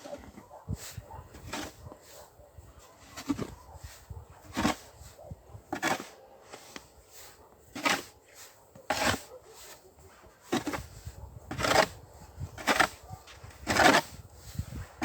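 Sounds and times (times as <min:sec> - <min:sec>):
snow shovel scraping snow: 0:00.0 - 0:15.0.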